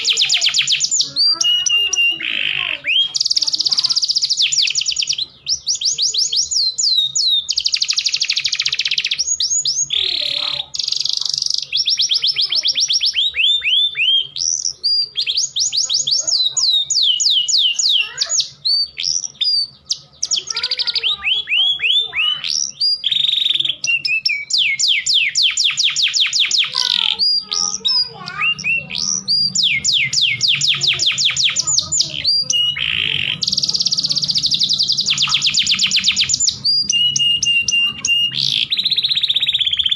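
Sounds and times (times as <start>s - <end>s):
canaries singing rolling trills: 0.0s - 39.9s
canary chirps and calls: 0.0s - 39.9s.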